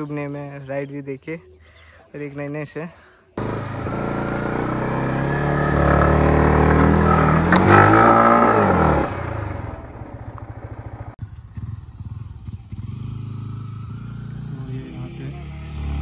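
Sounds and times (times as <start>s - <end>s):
motorcycle engine revving: 3.4s - 16.0s.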